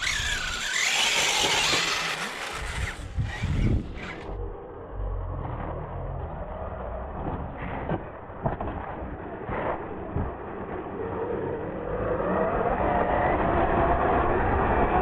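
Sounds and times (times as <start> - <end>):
tyres scrabbling on rock: 0.0 - 4.3
toy truck motor: 0.0 - 4.4.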